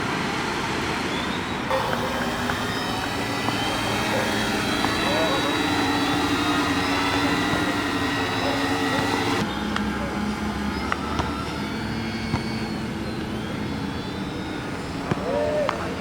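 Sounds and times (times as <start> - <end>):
drone motors whining: 1.7 - 9.5.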